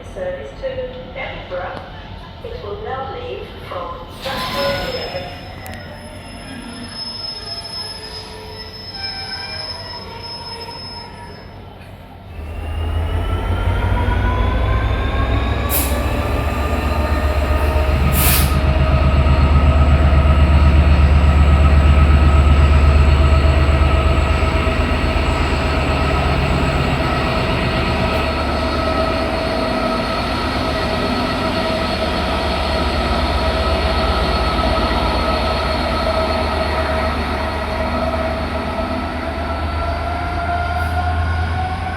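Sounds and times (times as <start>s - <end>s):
train rumble: 11.8s - 41.9s.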